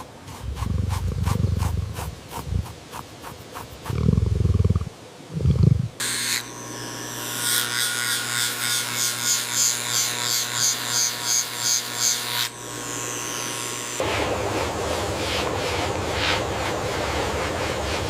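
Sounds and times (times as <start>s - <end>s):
electric motor humming: 6.0s - 16.9s.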